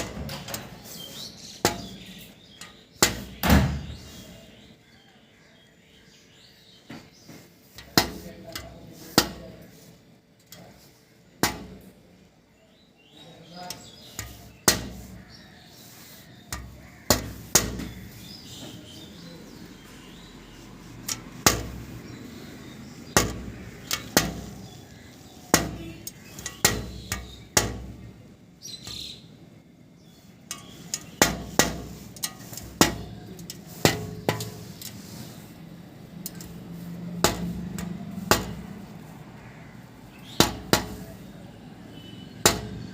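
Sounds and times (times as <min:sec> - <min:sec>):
woodpecker pecking: 0:13.8 - 0:28.0.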